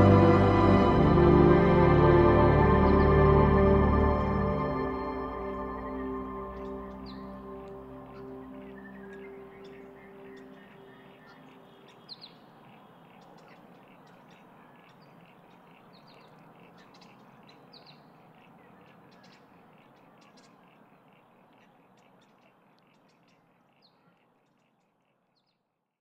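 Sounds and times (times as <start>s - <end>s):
pulsing background chorus: 0.0s - 11.6s
birds chirping: 0.0s - 25.6s.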